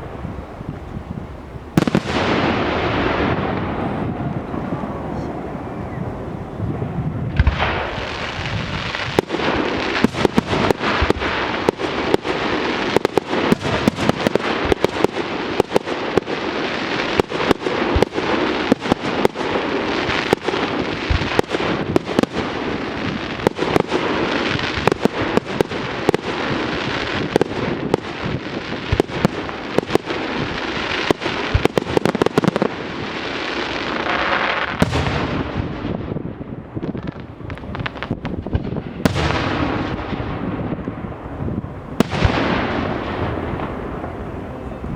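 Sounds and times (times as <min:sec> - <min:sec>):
fireworks bangs: 0:00.0 - 0:44.9
fireworks crackling: 0:00.0 - 0:44.9.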